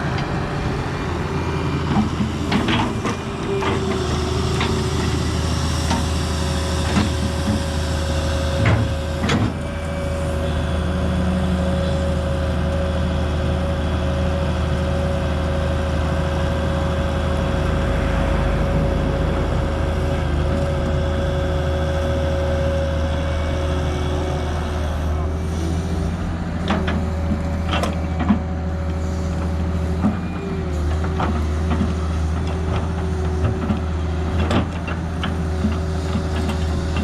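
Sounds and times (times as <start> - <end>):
excavator diesel engine running: 0.0 - 37.0
steady whine: 14.9 - 26.2.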